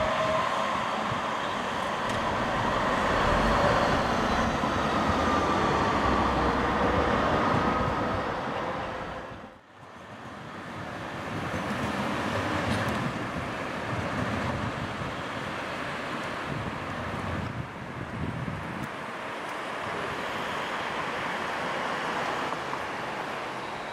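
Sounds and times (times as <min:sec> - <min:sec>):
wind on microphone: 0:00.0 - 0:09.5, 0:16.2 - 0:19.0
tram running on track: 0:00.0 - 0:23.9.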